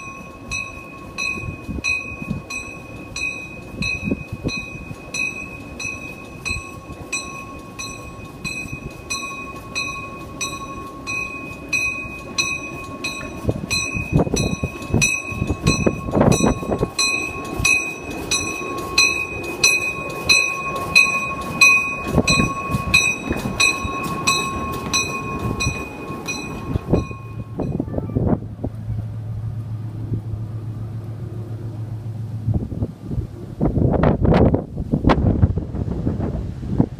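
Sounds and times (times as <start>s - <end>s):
bell ringing fast: 0.0s - 27.8s
low steady hum: 0.0s - 35.9s
train rumbling: 0.0s - 36.9s.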